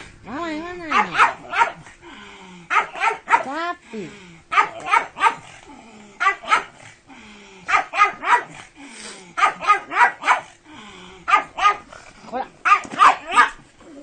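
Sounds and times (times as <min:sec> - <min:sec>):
dog barking: 0:00.9 - 0:01.9, 0:02.7 - 0:03.5, 0:04.5 - 0:05.5, 0:06.2 - 0:06.8, 0:07.7 - 0:08.6, 0:09.4 - 0:10.5, 0:11.3 - 0:11.9, 0:12.6 - 0:13.6.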